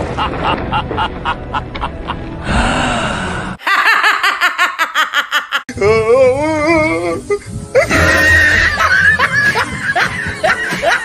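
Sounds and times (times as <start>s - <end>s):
woman laughing hard: 3.6s - 5.7s, 7.8s - 11.0s.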